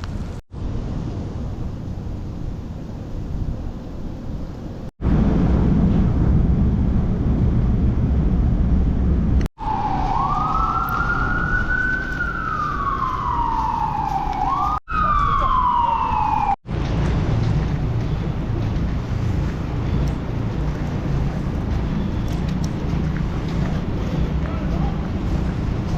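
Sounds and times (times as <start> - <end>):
low rumble of city traffic: 0.0 - 25.9
emergency vehicle siren wailing: 9.6 - 16.7.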